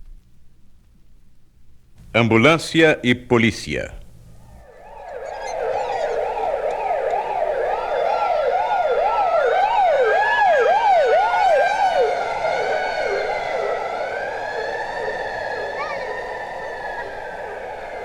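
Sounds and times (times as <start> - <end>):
rapid sweeping siren: 4.2 - 18.0
slower higher siren tone: 4.5 - 18.0.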